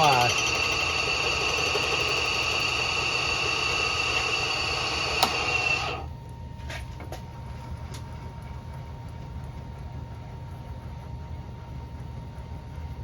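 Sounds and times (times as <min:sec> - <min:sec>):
milling machine whine: 0:00.0 - 0:06.2.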